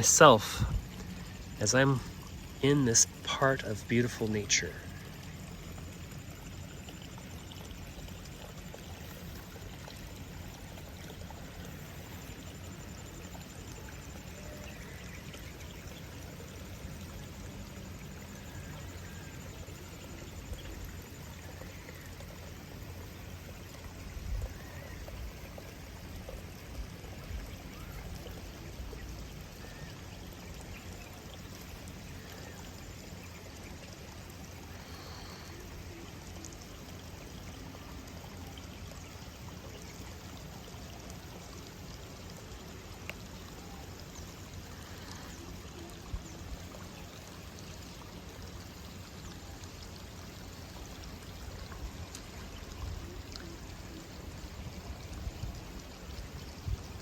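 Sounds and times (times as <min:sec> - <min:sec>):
running water trickling: 0:00.0 - 0:57.0
faint clicks: 0:43.0 - 0:43.4.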